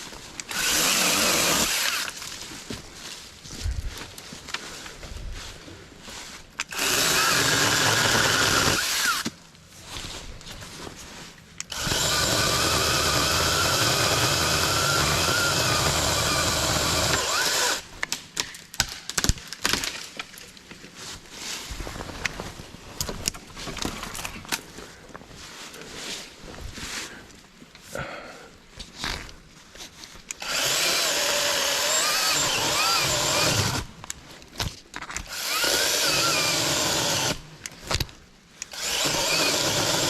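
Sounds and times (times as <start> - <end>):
mini chainsaw cutting wood: 0.5 - 2.2, 6.6 - 9.3, 11.7 - 17.8, 30.4 - 33.9, 35.2 - 37.4, 38.6 - 40.0
rustling: 19.4 - 27.8.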